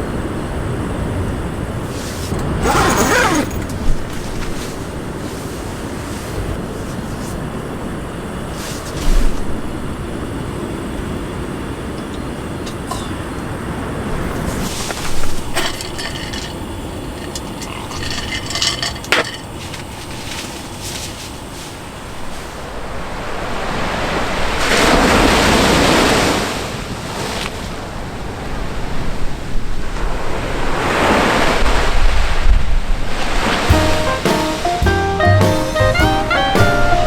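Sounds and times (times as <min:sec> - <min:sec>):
sea surf washing onto shore: 0:19.5 - 0:34.9.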